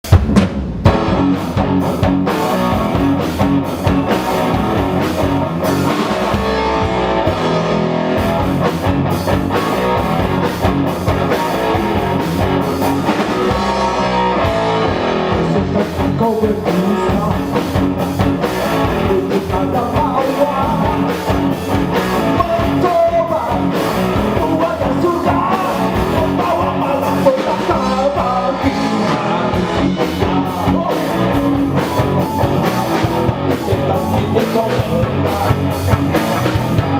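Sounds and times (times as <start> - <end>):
live rock band playing: 0.0 - 36.9
person singing: 13.1 - 17.8, 18.7 - 36.9.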